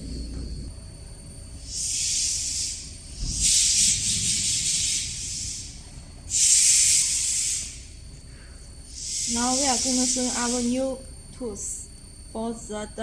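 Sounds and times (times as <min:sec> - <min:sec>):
high-pitched hissing bursts: 0:01.6 - 0:08.0, 0:08.9 - 0:10.8.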